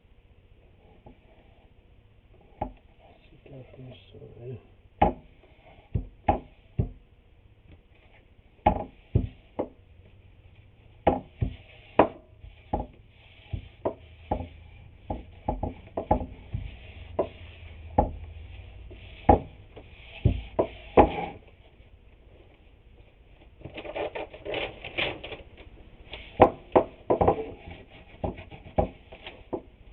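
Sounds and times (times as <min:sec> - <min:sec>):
wooden knocks and clunks: 0:02.5 - 0:02.8, 0:08.6 - 0:09.8, 0:11.0 - 0:21.5, 0:26.2 - 0:29.8.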